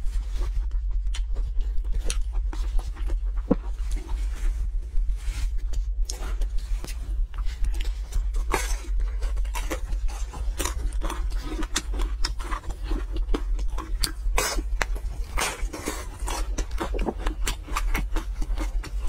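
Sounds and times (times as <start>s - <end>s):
person chewing crunchy pastry: 0.0s - 19.0s
steady low hum: 0.0s - 19.0s.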